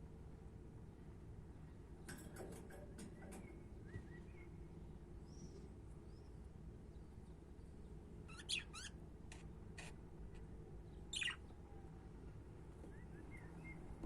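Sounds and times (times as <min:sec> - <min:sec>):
budgerigars chirping: 0:08.3 - 0:09.0, 0:11.1 - 0:11.5.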